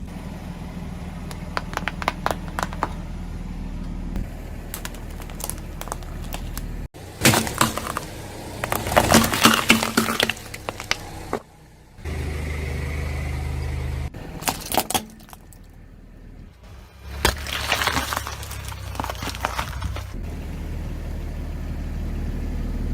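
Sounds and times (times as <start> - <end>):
car engine hum: 0.0 - 22.9
tyres crunching objects: 1.2 - 3.1, 4.2 - 11.5, 14.2 - 15.8, 16.7 - 20.2.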